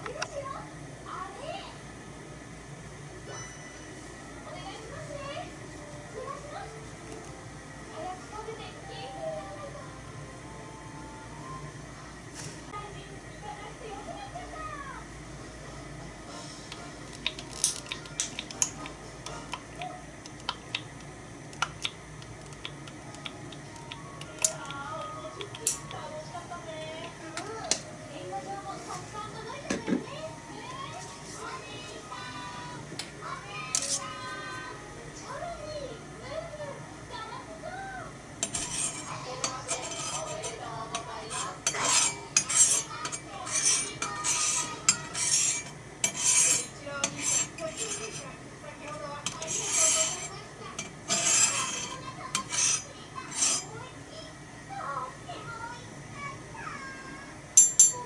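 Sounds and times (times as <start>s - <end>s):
low steady hiss of burning stove: 0.0s - 58.0s
stove ticking and crackling: 16.7s - 27.9s, 38.4s - 53.7s
spoon scraping a bowl: 25.4s - 25.9s, 33.8s - 34.1s, 38.4s - 53.8s.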